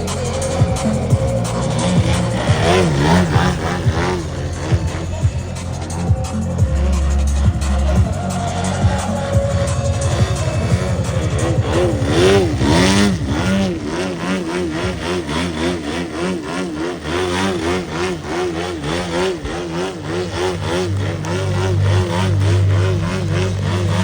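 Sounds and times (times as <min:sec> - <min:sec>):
model plane engine running: 0:00.0 - 0:24.0.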